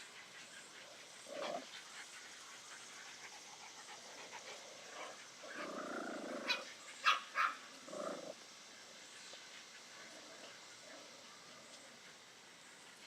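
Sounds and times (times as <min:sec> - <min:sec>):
puppy growling: 0:04.3 - 0:06.6, 0:07.8 - 0:08.4.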